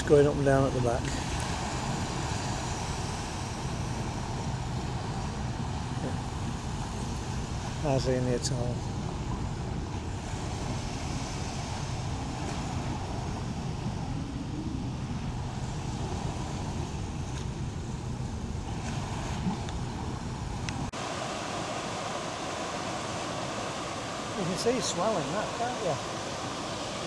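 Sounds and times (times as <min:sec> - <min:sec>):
wind and sea rushing: 0:00.0 - 0:27.0.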